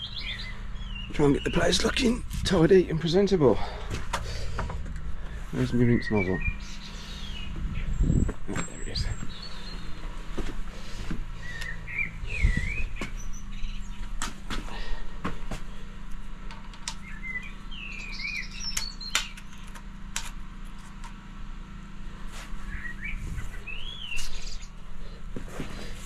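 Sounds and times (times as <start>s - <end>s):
small birds chirping: 0.0s - 20.0s, 22.3s - 26.0s
low machine hum: 0.0s - 26.0s
sharp clicks: 18.7s - 20.4s.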